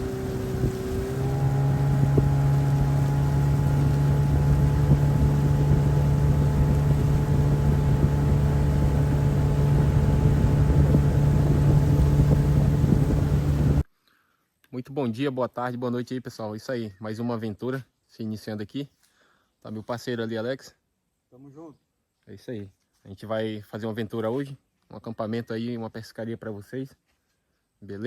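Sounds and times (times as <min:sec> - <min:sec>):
small boat motor running: 0:00.0 - 0:13.8.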